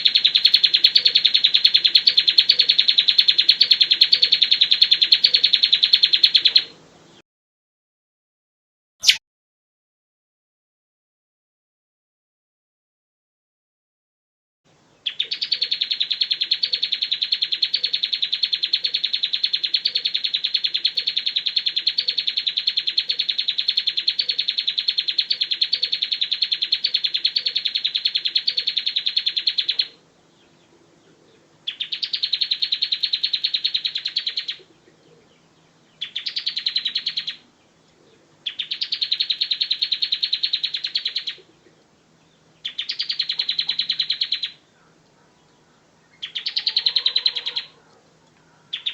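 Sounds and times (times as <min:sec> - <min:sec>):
bird singing rapid trills: 0:00.0 - 0:07.2, 0:15.0 - 0:44.7, 0:45.3 - 0:47.8, 0:48.4 - 0:48.9
faint low hum: 0:16.4 - 0:48.9.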